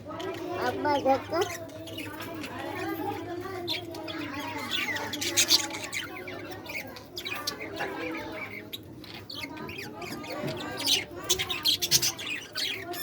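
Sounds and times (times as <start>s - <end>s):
budgies chirping and chattering: 0.0s - 13.0s.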